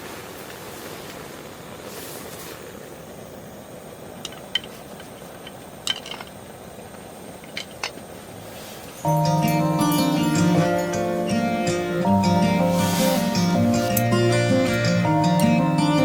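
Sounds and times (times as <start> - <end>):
steady low hiss: 0.0 - 16.0
plucked-string music: 9.0 - 16.0.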